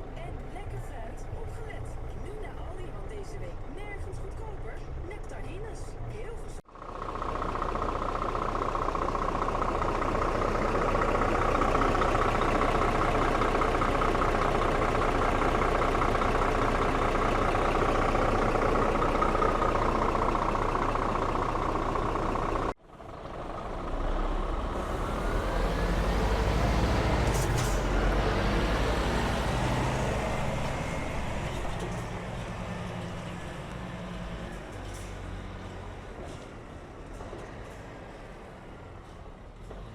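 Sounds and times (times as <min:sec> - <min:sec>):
truck diesel engine running: 0:00.0 - 0:39.9
deep engine with rising whine: 0:06.8 - 0:35.7.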